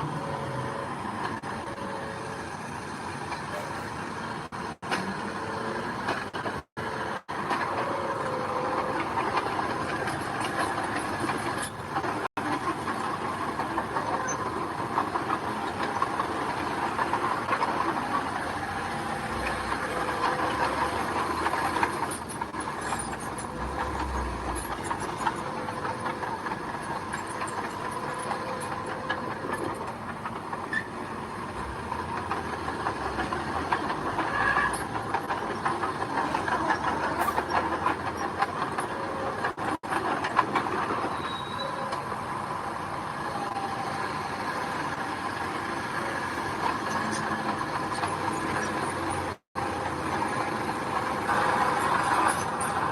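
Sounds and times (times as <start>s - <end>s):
diesel engine running: 0.0s - 52.9s
steel tracks clattering on gravel: 7.2s - 41.8s.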